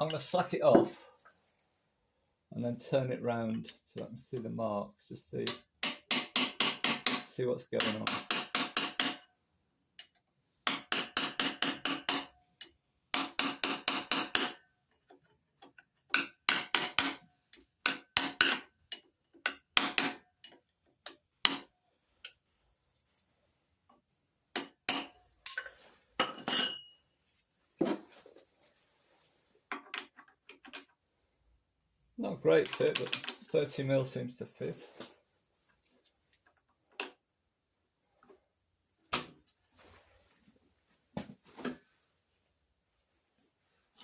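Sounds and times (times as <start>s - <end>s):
metal clinking on metal: 15.6s - 22.4s, 24.5s - 27.0s.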